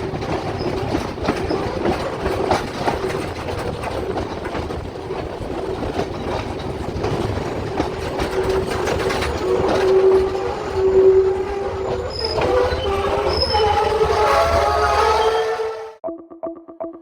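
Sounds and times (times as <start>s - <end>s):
train rumbling on rails: 0.0s - 16.0s
train wheels squealing: 7.2s - 15.9s.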